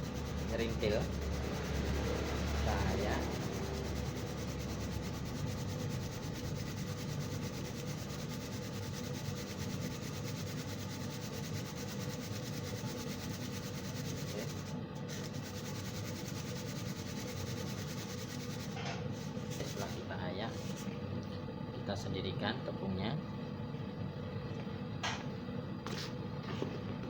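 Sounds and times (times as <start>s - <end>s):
flour sifting through sieve: 0.1s - 20.9s.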